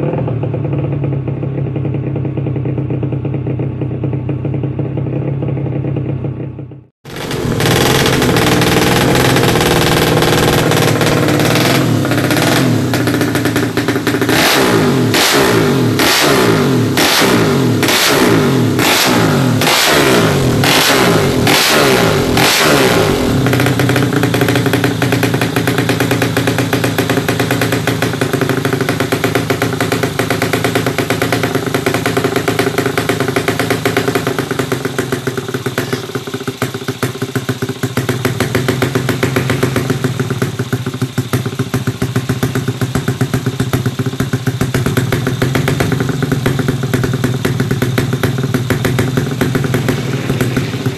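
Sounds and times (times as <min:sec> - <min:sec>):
motorcycle engine revving and idling: 0:00.0 - 0:50.9.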